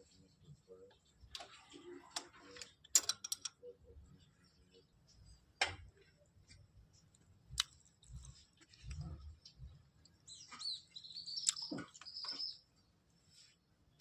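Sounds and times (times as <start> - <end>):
metal tools clicking and clinking: 2.6 - 3.6.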